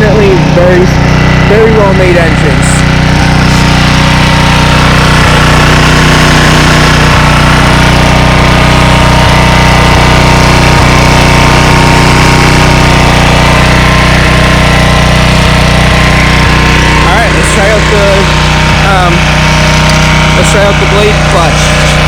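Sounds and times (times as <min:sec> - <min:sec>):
lawnmower engine running: 0:00.0 - 0:22.0.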